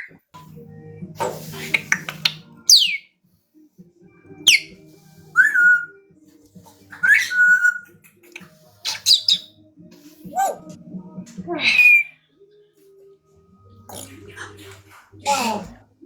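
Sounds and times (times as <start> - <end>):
parrots whistling: 1.2 - 3.1, 4.4 - 6.1, 6.9 - 9.6, 11.6 - 12.2.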